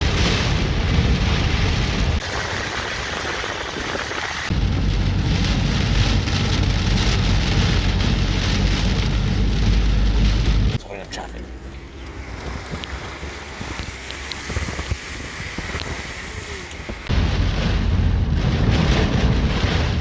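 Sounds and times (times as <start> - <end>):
heavy rain: 0.0 - 20.0
hurricane wind: 0.0 - 20.0
wind buffeting microphone: 11.5 - 20.0.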